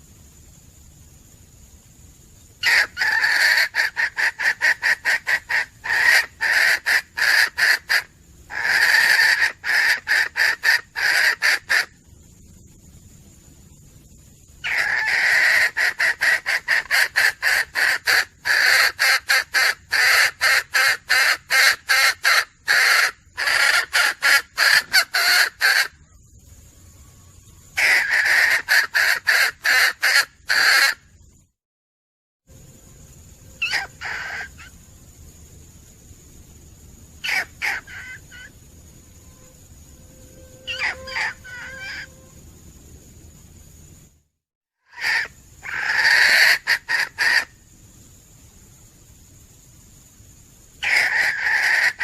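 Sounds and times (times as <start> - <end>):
junglefowl hen cackling: 2.6 - 12.0, 14.6 - 26.0, 27.8 - 31.0, 33.6 - 34.7, 37.2 - 38.5, 40.6 - 42.2, 44.9 - 47.6, 50.8 - 52.0.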